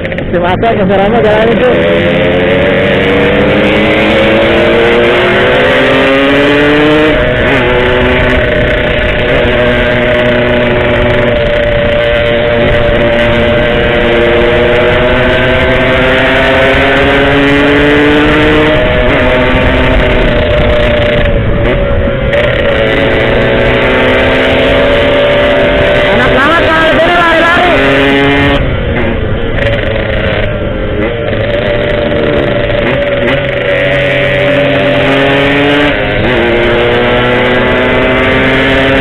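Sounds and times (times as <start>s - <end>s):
motorcycle engine accelerating: 0.0s - 39.0s.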